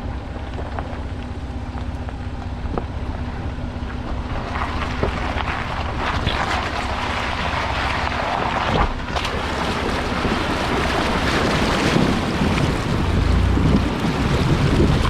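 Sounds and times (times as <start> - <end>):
low engine rumble: 0.0 - 15.0
water rushing and splashing: 4.1 - 15.0.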